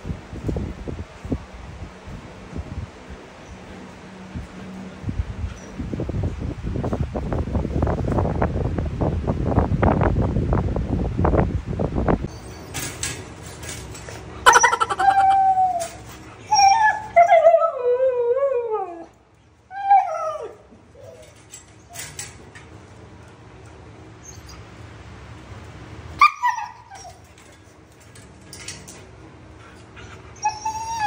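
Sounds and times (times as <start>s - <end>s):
dog whining and howling: 14.4s - 22.2s, 24.2s - 24.6s, 26.2s - 27.6s, 30.0s - 31.0s.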